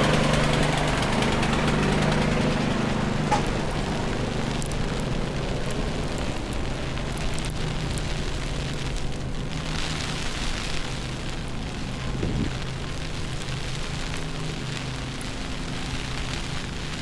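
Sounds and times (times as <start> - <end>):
continuous street hiss: 0.0 - 17.0
low engine hum: 0.0 - 17.0.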